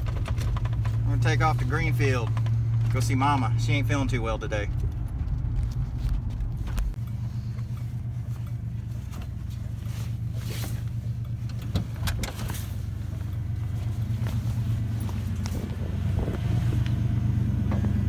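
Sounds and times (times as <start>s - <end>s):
light clicks and knocks: 0.0s - 3.1s
truck engine low rumble: 0.0s - 18.0s.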